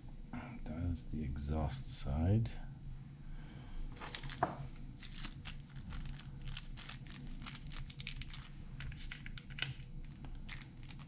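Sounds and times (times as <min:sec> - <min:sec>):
low steady hum: 0:00.0 - 0:11.0
packaging rustling: 0:04.0 - 0:11.0.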